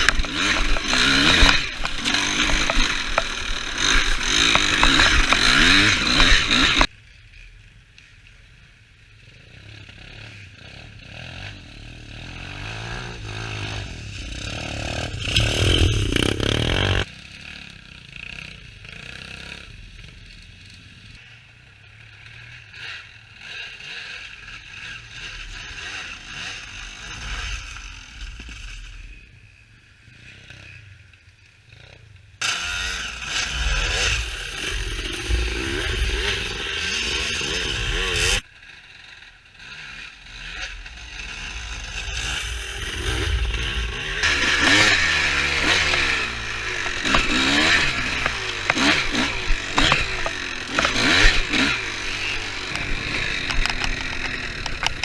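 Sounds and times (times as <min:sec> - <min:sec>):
small engine running: 0:00.0 - 0:06.9, 0:32.4 - 0:55.0.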